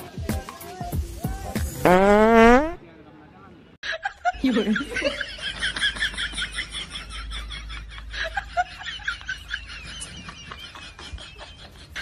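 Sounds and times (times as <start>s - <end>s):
women giggling: 3.8s - 12.0s.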